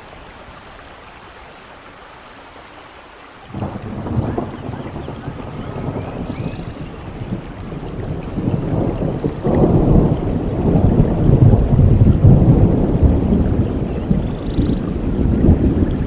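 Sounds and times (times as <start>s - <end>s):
steady rain: 0.0s - 16.0s
deep roll of thunder: 3.5s - 16.0s.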